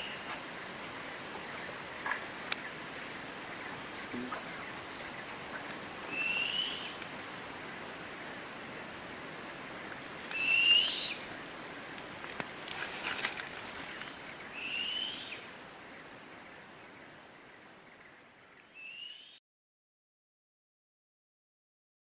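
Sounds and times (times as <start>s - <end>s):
bird rising whistle call: 6.1s - 6.9s.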